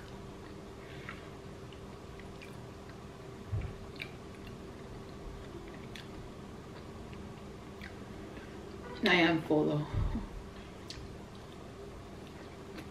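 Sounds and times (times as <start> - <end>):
person chewing food: 0.0 - 8.8, 10.6 - 12.9
wet mouth clicks: 3.9 - 4.6.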